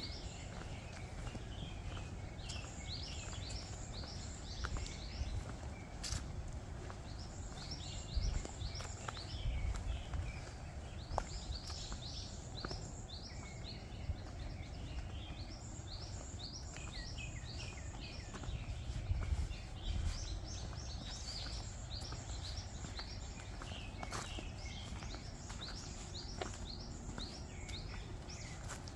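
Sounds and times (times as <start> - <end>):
small birds chirping: 0.0 - 28.9
steady low rumble: 0.0 - 28.9.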